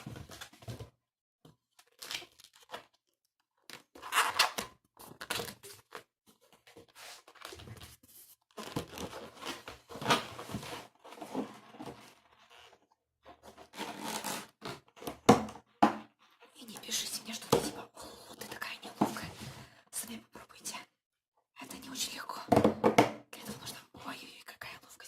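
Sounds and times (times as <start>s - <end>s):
balloons twisting and rubbing: 13.6s - 14.9s.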